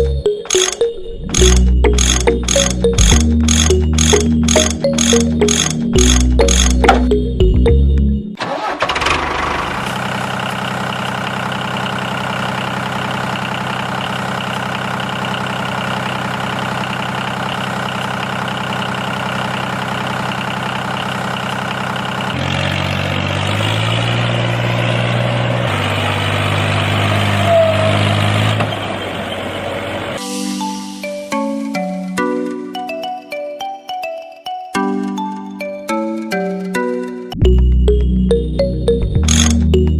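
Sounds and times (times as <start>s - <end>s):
small tractor engine running: 0.0s - 7.3s, 8.4s - 30.2s, 39.2s - 39.9s.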